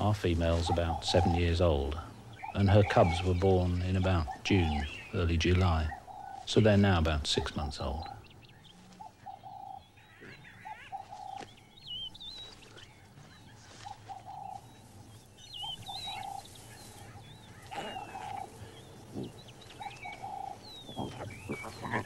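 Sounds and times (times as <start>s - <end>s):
low cooing bird calls: 0.0s - 22.0s
high bird chirps: 7.6s - 22.0s.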